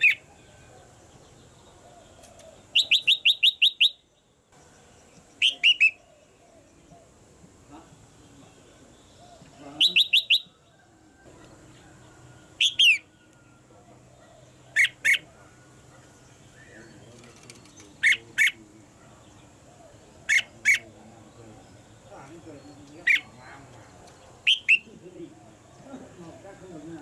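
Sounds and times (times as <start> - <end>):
bird whistling calls: 2.0 - 4.1, 5.4 - 6.7, 9.2 - 10.6, 12.6 - 13.6, 24.4 - 24.9.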